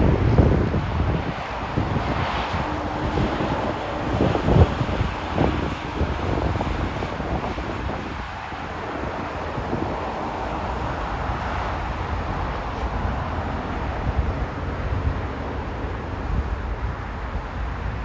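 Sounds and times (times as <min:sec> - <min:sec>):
jet airliner noise: 0:00.0 - 0:18.0
wind buffeting microphone: 0:00.0 - 0:18.0.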